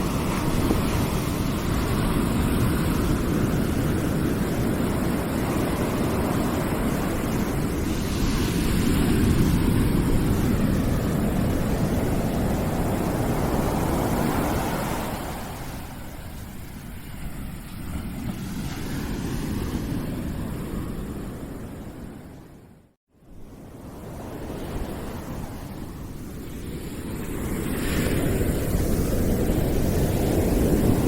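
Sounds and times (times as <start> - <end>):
dense rushing noise: 0.0 - 21.2.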